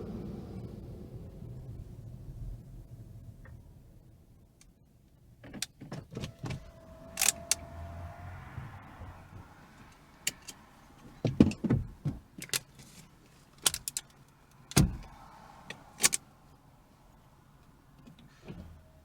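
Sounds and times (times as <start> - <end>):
sharp clicks and knocks: 13.6 - 15.0.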